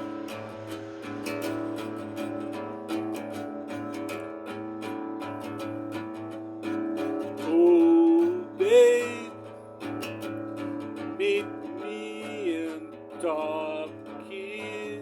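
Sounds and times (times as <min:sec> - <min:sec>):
acoustic guitar strumming: 0:00.0 - 0:15.0
person singing wordless notes: 0:07.4 - 0:09.5, 0:11.2 - 0:15.0.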